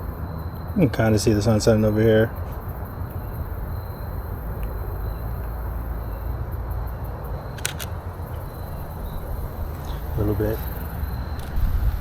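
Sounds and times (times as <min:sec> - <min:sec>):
camera shutter clicks: 0:07.6 - 0:10.1, 0:11.4 - 0:11.7.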